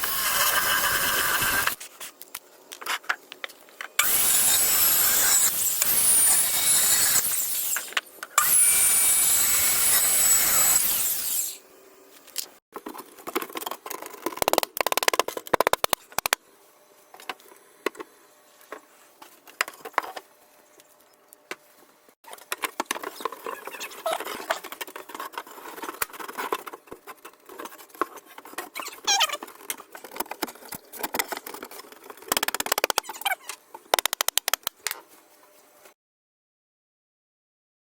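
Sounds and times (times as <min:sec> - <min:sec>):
power tool whining: 0:04.0 - 0:11.6.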